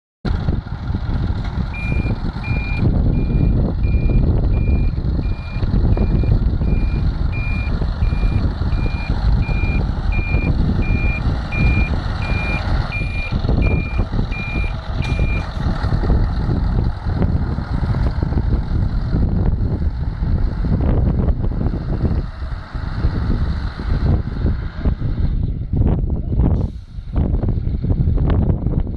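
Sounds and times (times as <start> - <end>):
truck engine rumbling: 0.2 - 28.9
reversing alarm beeping: 1.8 - 15.5.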